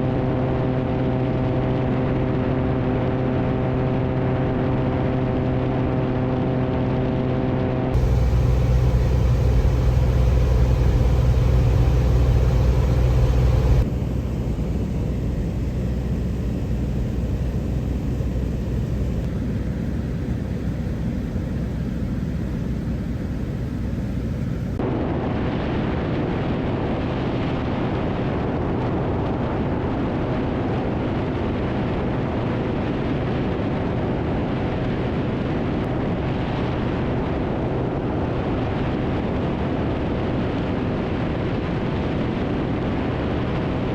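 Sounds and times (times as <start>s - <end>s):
light aircraft engine droning: 0.0s - 24.8s.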